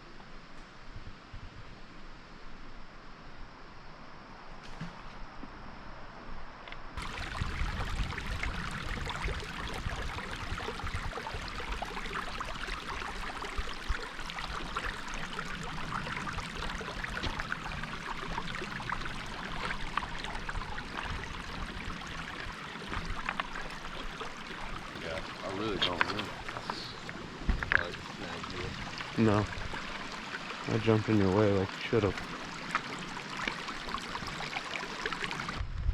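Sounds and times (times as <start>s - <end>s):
stream water rushing over rocks: 7.0s - 35.6s.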